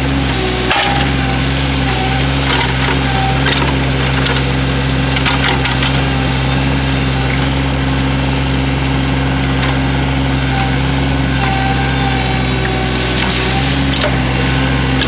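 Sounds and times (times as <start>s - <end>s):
excavator engine running: 0.0s - 15.0s
wood snapping: 0.2s - 6.3s, 11.3s - 15.0s.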